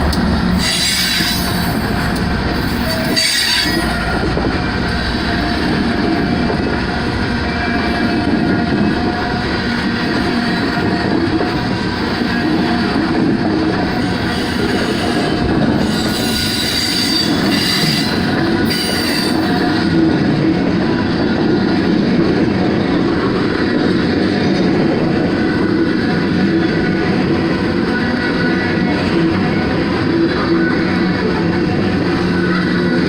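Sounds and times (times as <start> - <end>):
train wheels rumbling on rails: 0.0 - 33.0
high wheel squeal: 0.5 - 2.0, 2.6 - 4.2, 13.9 - 19.8.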